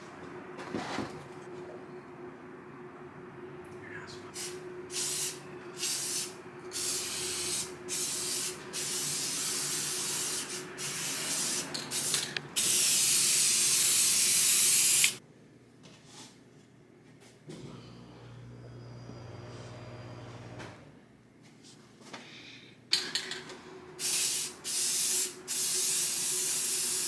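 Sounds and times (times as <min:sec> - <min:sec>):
spray paint hissing: 0:04.4 - 0:15.2, 0:24.0 - 0:27.0.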